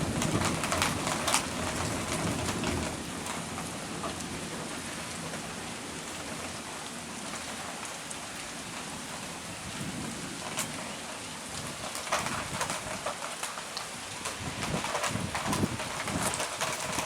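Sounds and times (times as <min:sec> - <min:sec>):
rain on hard surfaces: 0:00.0 - 0:17.0.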